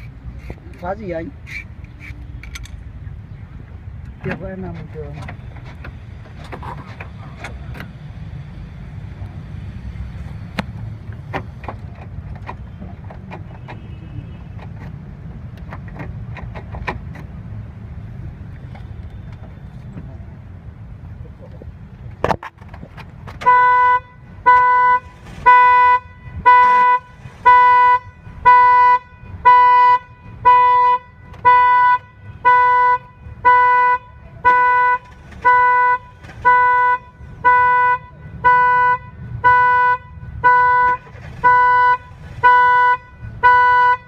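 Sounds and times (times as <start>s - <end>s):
car alarm horn honks: 23.4s - 44.0s.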